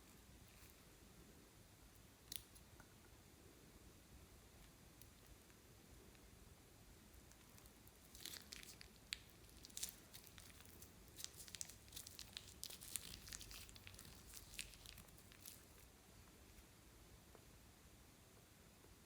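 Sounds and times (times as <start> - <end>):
sticky slime crackles: 7.2 - 15.9.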